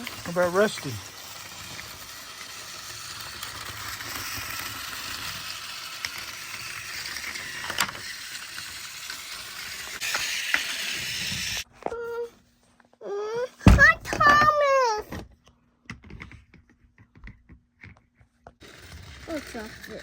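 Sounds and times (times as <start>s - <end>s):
toy train motor and gears: 0.0s - 12.3s, 18.6s - 20.0s.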